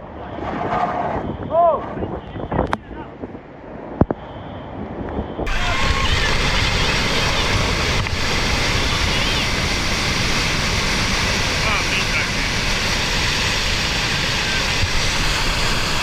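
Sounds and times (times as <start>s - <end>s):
wind buffeting microphone: 0.0s - 16.0s
faint voices: 5.5s - 10.6s
rushing floodwater roar: 5.5s - 16.0s.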